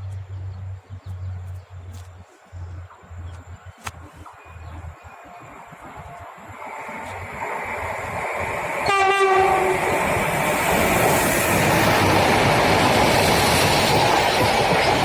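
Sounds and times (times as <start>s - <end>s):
freight train passing: 4.3s - 15.0s
train horn blast: 8.8s - 9.9s.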